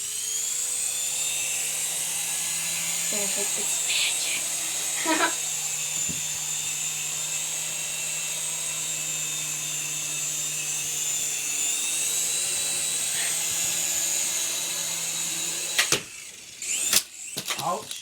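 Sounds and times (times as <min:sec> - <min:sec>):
rc helicopter motor whining: 0:00.0 - 0:18.0.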